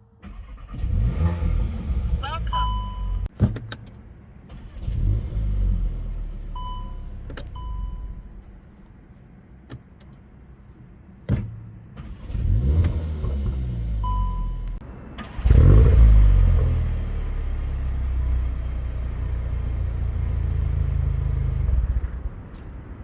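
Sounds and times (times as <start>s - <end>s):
car engine running cold: 0.0s - 23.0s
short beeps: 2.5s - 3.3s, 6.6s - 8.3s, 14.0s - 14.8s.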